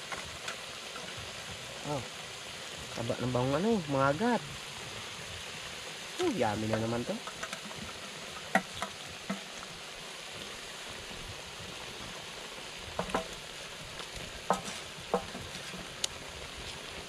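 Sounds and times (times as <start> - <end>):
food sizzling in a pan: 0.0 - 17.0
stirring knocks and clicks: 6.6 - 9.6, 12.9 - 13.4, 14.0 - 16.2.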